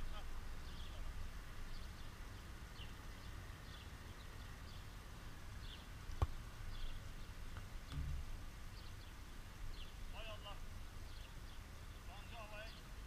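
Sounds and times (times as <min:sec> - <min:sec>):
small birds chirping: 0:00.0 - 0:13.0
faint low rumble: 0:06.7 - 0:09.1
football being kicked: 0:07.9 - 0:08.3.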